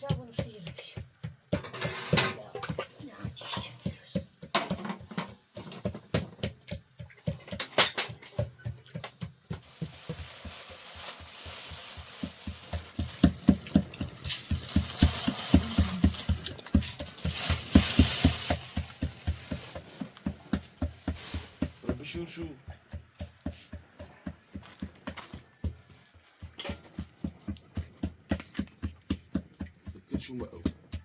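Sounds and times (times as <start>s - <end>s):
cooking utensils clattering: 1.6s - 2.9s, 7.1s - 8.4s.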